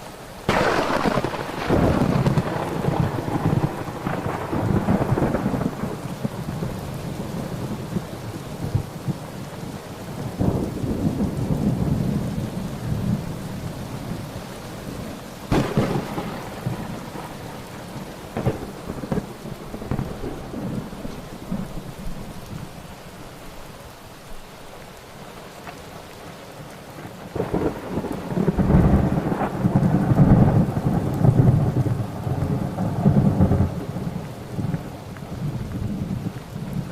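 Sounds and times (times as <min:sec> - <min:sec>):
steady rain: 0:00.0 - 0:36.9
sharp thunder crack: 0:00.5 - 0:06.4, 0:15.5 - 0:17.5, 0:18.3 - 0:21.9
rolling thunder: 0:00.5 - 0:09.4, 0:10.3 - 0:14.2, 0:14.8 - 0:22.8, 0:27.3 - 0:36.9.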